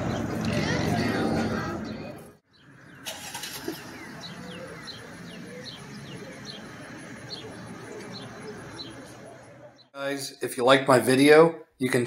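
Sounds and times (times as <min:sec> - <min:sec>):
small bird chirping: 0:02.5 - 0:10.0.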